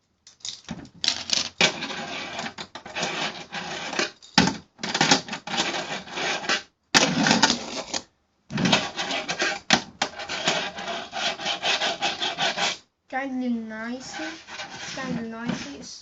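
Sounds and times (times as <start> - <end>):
fingerboard wheels rolling on ramp: 1.6 - 4.2.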